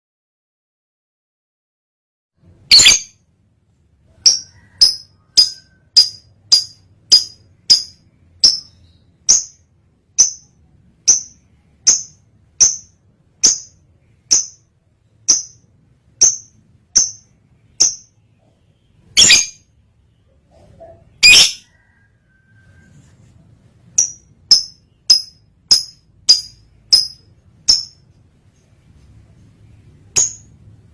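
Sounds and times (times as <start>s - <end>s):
lovebird high chirps: 2.6s - 3.2s, 4.2s - 14.7s, 16.2s - 19.7s, 20.5s - 22.0s, 24.0s - 28.0s
lovebird harsh call: 2.7s - 3.1s.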